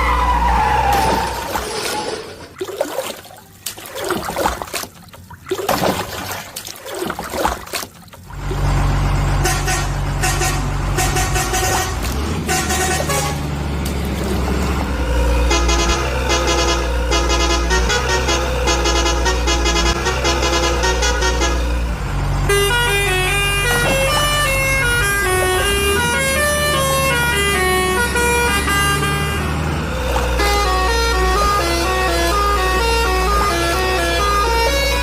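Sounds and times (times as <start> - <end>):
truck engine drone: 0.0 - 35.0
truck horn honks: 9.4 - 13.6, 15.1 - 35.0.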